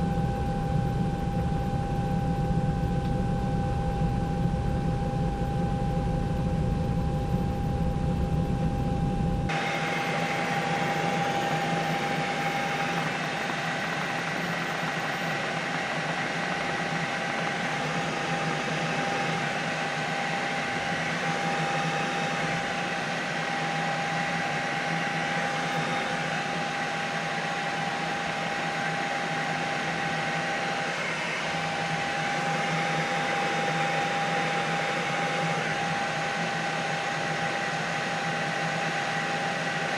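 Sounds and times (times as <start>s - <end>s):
deep low rumble: 0.0s - 9.5s
helicopter drone: 0.0s - 39.9s
high whine: 0.0s - 39.9s.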